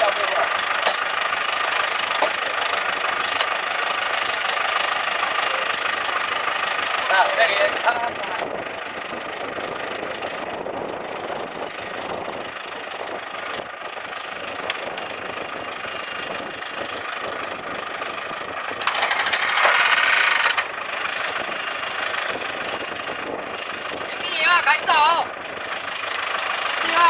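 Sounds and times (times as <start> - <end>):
machine engine running: 0.1 - 10.0, 18.7 - 27.0
rapid rattling: 0.8 - 3.7, 18.8 - 20.8.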